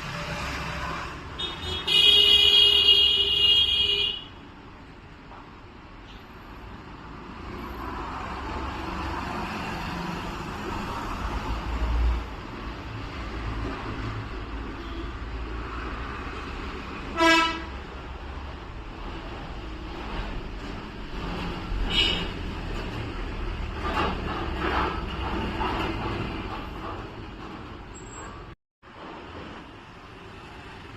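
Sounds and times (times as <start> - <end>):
road traffic rumble: 0.0 - 30.9
car horn toot: 0.8 - 4.3, 17.2 - 17.7.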